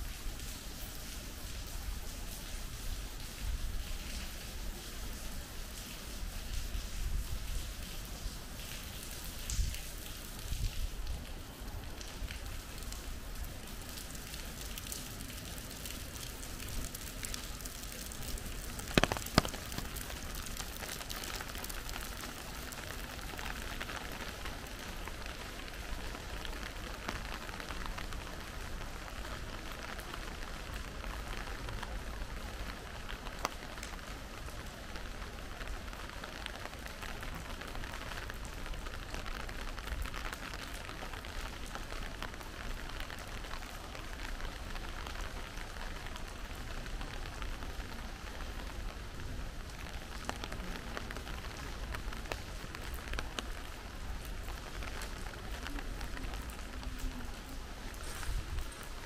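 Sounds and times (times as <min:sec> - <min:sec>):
steady rain falling: 0:00.0 - 0:59.0
small drips ticking: 0:11.9 - 0:23.3.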